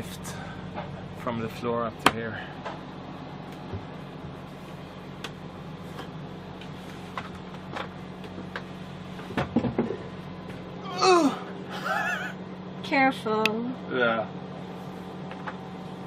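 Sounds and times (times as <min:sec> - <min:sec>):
person groaning with effort: 0:10.8 - 0:12.3.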